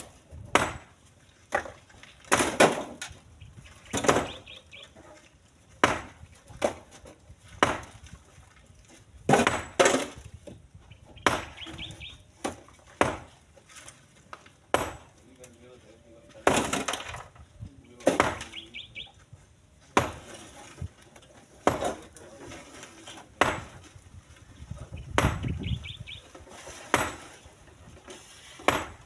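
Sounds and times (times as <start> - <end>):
stones knocking into truck bed: 1.5 - 3.1, 9.3 - 10.2.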